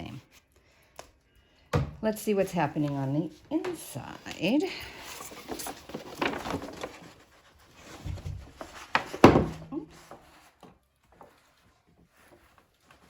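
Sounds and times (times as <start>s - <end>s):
parchment rubbing and rustling: 2.5s - 9.2s, 9.9s - 13.0s.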